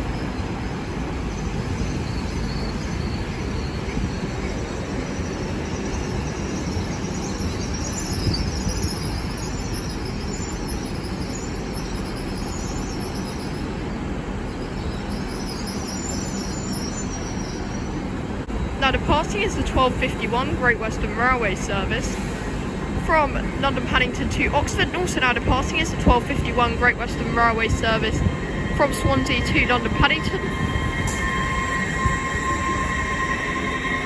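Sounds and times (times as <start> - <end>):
train rumbling: 0.0 - 34.0
wheels squealing: 25.2 - 34.0.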